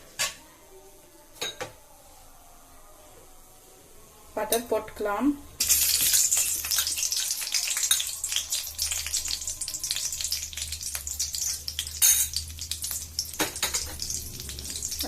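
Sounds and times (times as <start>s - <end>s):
butter sizzling in a pan: 5.6s - 15.0s.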